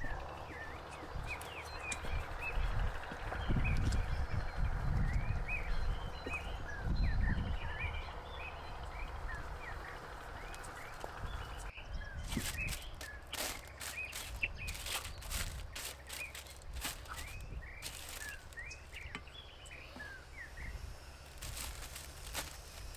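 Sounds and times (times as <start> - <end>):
small birds chirping: 0.0 - 22.9
sharp clicks and crackles: 12.4 - 19.2.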